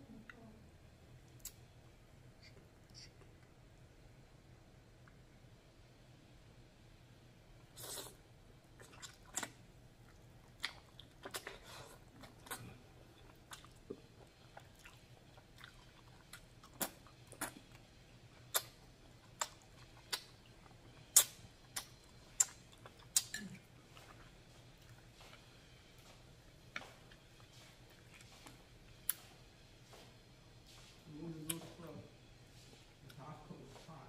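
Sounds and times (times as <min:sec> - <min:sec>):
person chewing and lip smacking: 0:01.3 - 0:01.7, 0:07.8 - 0:30.1, 0:30.8 - 0:31.8.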